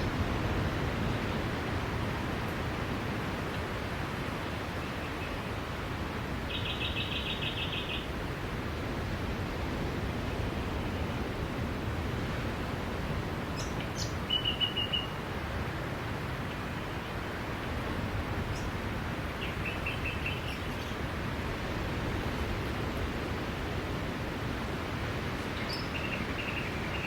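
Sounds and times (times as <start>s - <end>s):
sea surf: 14.2s - 27.0s
small birds chirping: 18.4s - 21.0s, 25.4s - 27.0s.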